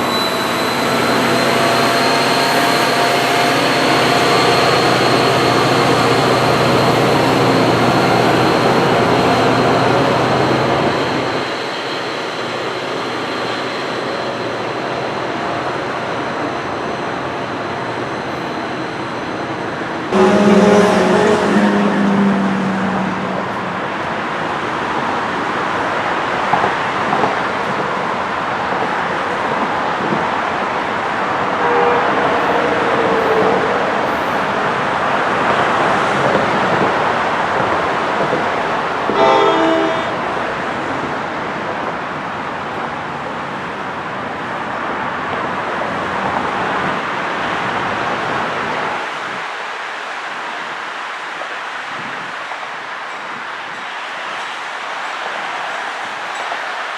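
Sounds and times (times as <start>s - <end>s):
train wheels on rails: 0.0s - 56.9s
train horn: 20.1s - 23.9s, 31.5s - 34.5s, 39.1s - 40.3s.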